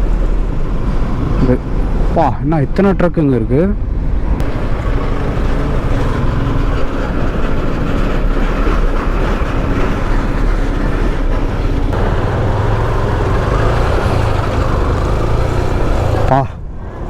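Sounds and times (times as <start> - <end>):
wind rush over microphone: 0.0 - 2.4
motorcycle engine running: 4.4 - 16.6.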